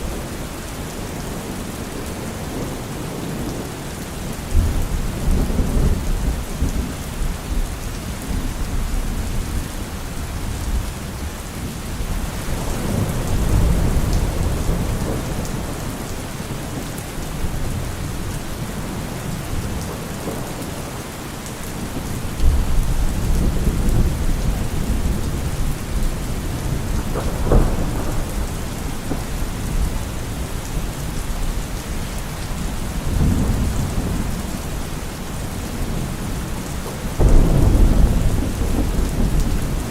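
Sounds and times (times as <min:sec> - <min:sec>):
rain on trees and leaves: 0:00.0 - 0:39.9
thunder rolling: 0:22.3 - 0:31.4, 0:36.9 - 0:39.9
sharp thunder crack: 0:37.2 - 0:39.9.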